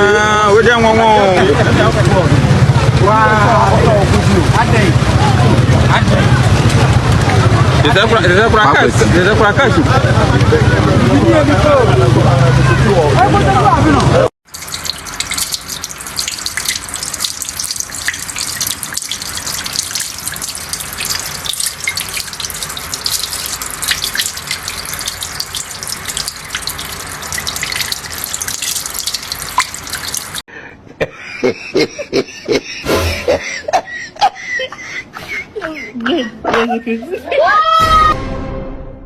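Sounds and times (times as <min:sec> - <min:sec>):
voices: 0:00.0 - 0:14.3
rushing splashing water: 0:14.5 - 0:30.4.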